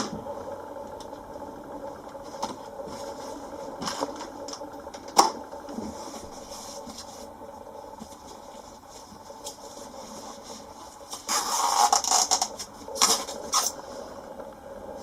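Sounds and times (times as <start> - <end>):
objects scraping and rustling: 8.1 - 13.8.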